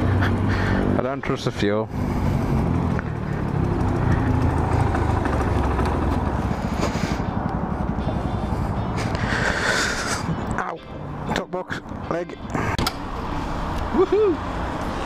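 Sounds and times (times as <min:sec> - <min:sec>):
small motorcycle engine running: 0:01.9 - 0:08.4.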